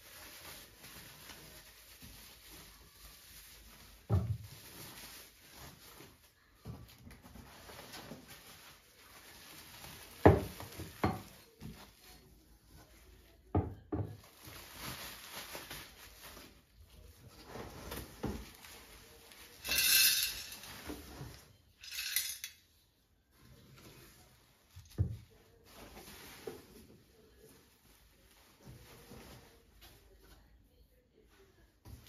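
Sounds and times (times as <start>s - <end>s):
dishes and cutlery clinking: 19.6s - 20.9s.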